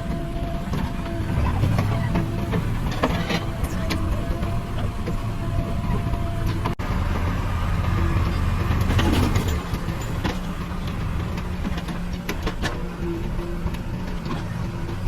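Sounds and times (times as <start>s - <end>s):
diesel engine under load: 0.0s - 15.0s.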